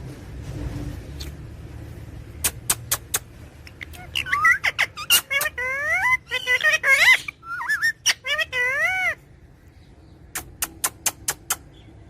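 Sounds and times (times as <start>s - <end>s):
parrot whistling calls: 2.5s - 9.2s.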